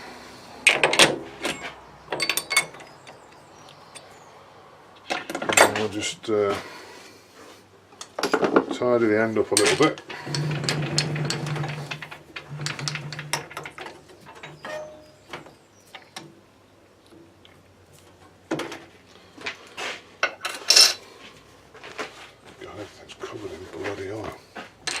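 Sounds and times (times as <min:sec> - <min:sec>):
metallic clinks and knocks: 0:00.7 - 0:04.2, 0:09.6 - 0:15.5.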